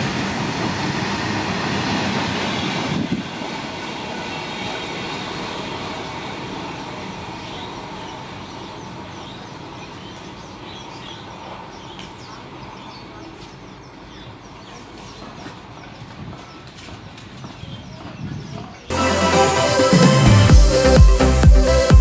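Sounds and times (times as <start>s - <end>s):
train passing: 0.0s - 10.6s, 18.9s - 22.0s.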